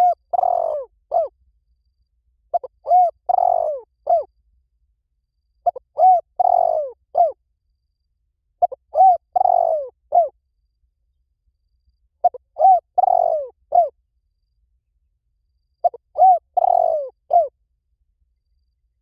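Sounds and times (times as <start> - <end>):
dove cooing: 0.0 - 1.3, 2.5 - 4.3, 5.6 - 7.4, 8.6 - 10.4, 12.2 - 14.0, 15.8 - 17.5.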